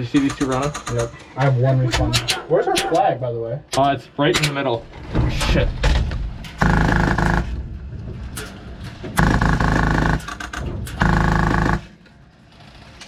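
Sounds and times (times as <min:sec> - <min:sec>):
airsoft machine gun bursts: 0:06.6 - 0:07.5, 0:09.2 - 0:11.9.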